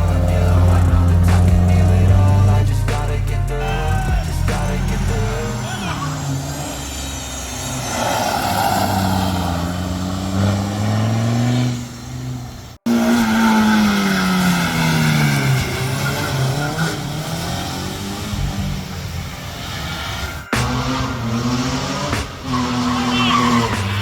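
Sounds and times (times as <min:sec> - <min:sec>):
race car engines at full throttle: 0:00.0 - 0:24.0.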